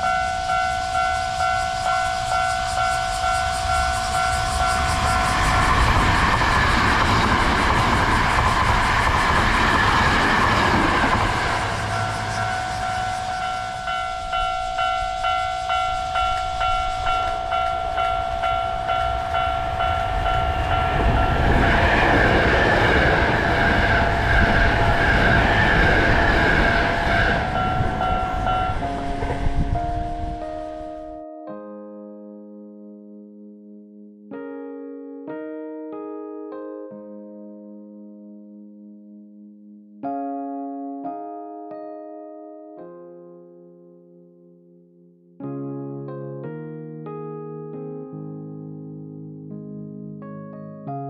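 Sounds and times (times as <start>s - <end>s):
level crossing bell ringing: 0.0s - 5.6s, 11.3s - 23.2s, 26.0s - 31.2s
train wheels clattering over rail joints: 0.2s - 29.7s.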